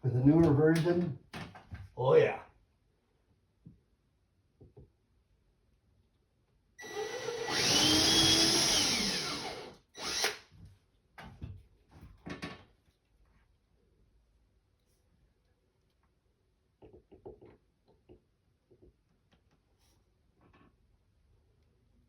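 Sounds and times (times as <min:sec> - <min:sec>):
cordless drill drilling: 0:06.8 - 0:10.5.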